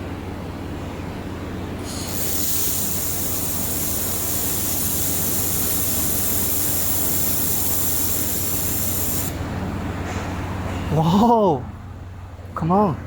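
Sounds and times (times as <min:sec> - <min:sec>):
laser welder hissing: 0:01.8 - 0:09.4.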